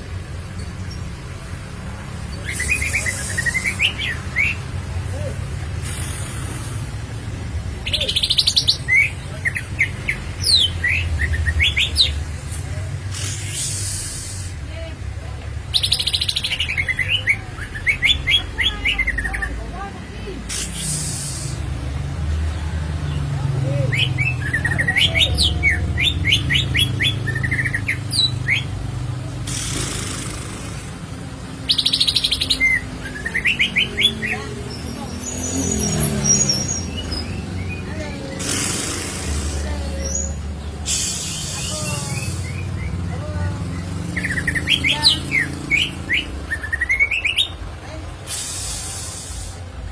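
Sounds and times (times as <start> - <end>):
bird singing fast trill: 31.6 - 39.3.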